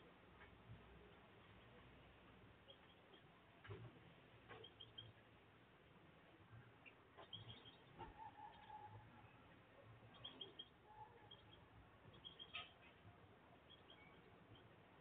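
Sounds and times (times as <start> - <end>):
faint bird chirps: 2.6 - 3.8, 4.5 - 5.2, 6.5 - 15.0.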